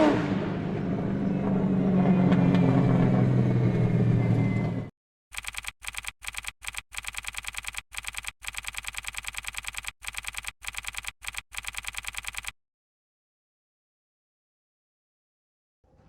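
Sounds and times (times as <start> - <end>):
rapid even clicking: 5.3 - 12.6.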